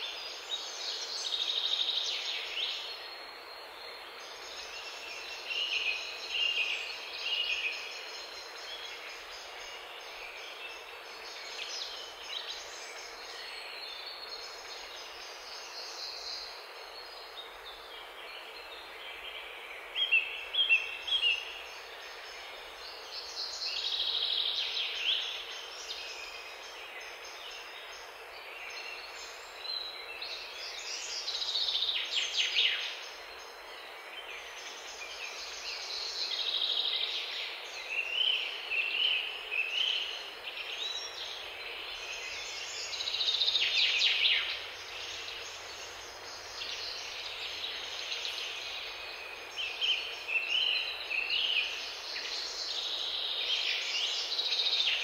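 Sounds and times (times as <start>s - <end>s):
steady background hiss: 0.0s - 55.0s.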